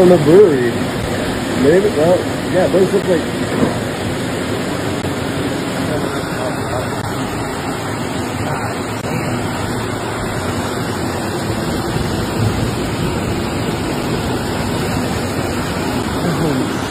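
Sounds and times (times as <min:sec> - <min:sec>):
floodwater rushing: 0:00.0 - 0:16.9.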